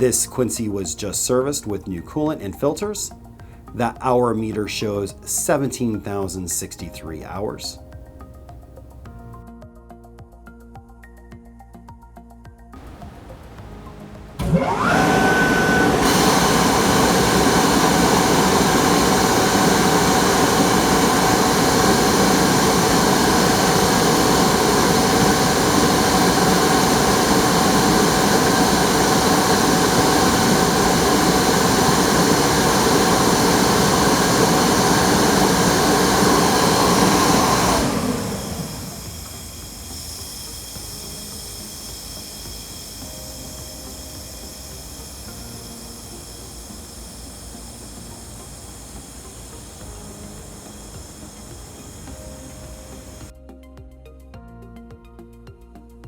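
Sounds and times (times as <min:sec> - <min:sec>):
quiet hiss: 0:12.8 - 0:14.7
air compressor running: 0:12.8 - 0:53.3.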